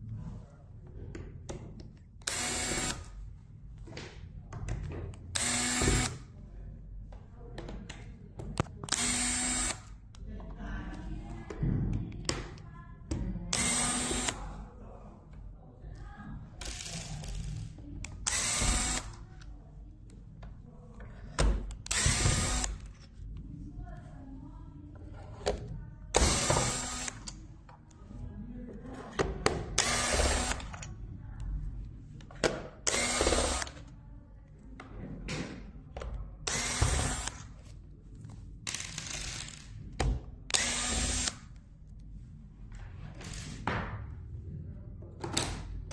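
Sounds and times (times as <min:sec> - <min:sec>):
power screwdriver whirring: 0:02.2 - 0:03.0, 0:05.4 - 0:06.2, 0:08.9 - 0:09.8, 0:13.5 - 0:14.4, 0:18.2 - 0:19.2, 0:21.8 - 0:22.8, 0:26.2 - 0:27.3, 0:29.8 - 0:30.8, 0:32.9 - 0:33.8, 0:36.5 - 0:37.4, 0:40.5 - 0:41.4.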